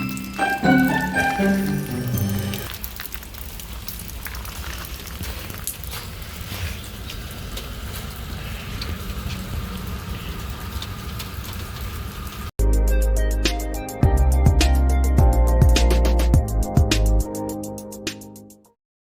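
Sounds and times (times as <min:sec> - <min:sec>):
water drips ticking: 0:00.0 - 0:12.5.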